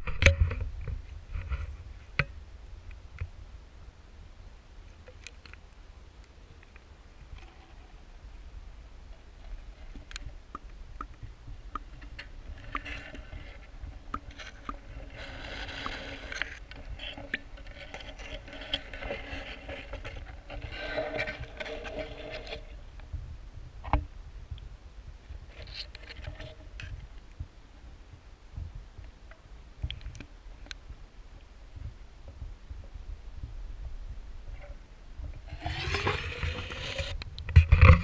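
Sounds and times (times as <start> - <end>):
low underwater rumble: 26.3 - 35.6.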